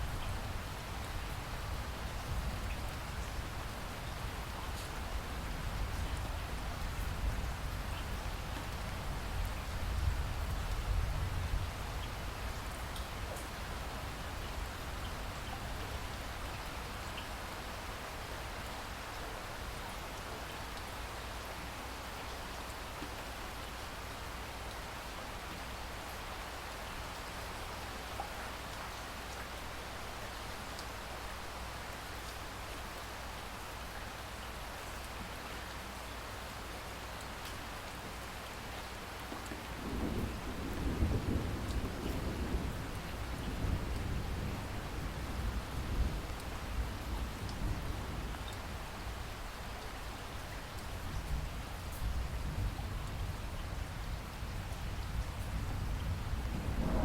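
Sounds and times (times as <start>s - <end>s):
steady rainfall hiss: 0.0s - 57.0s
rain hissing: 54.8s - 57.0s.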